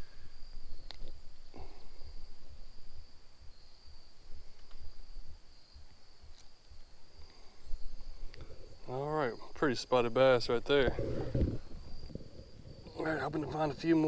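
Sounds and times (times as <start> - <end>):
insect chirring: 0.0 - 14.0
low rumbles: 10.4 - 14.0.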